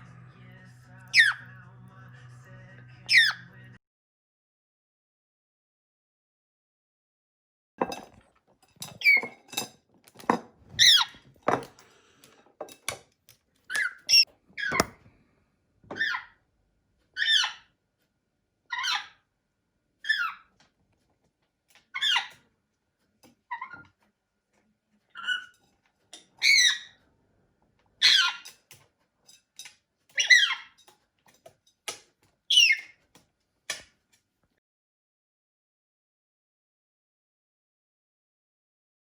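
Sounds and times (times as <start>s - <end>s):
parrot squeaky chirps and whistles: 1.1s - 1.4s, 3.1s - 3.4s, 10.8s - 11.2s, 13.7s - 14.9s, 17.2s - 17.7s, 20.1s - 20.4s, 22.0s - 22.3s, 25.2s - 25.5s, 26.4s - 27.0s, 28.0s - 28.5s, 30.2s - 30.8s, 32.5s - 33.0s.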